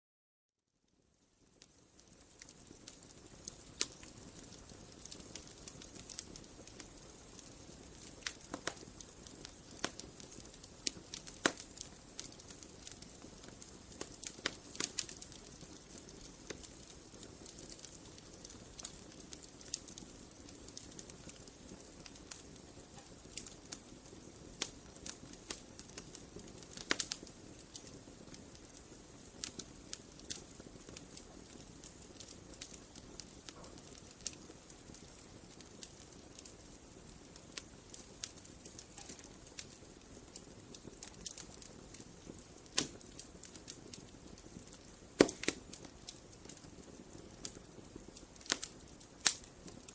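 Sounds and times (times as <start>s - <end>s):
wood fire crackling: 0.9s - 49.9s.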